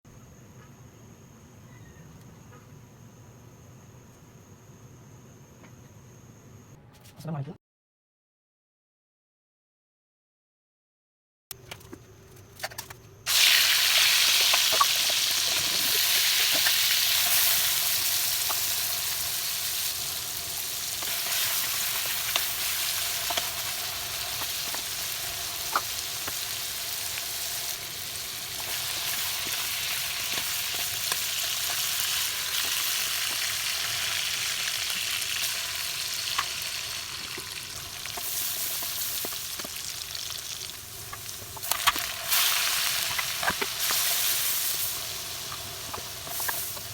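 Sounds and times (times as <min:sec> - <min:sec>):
food sizzling in hot oil: 0:13.3 - 0:46.9.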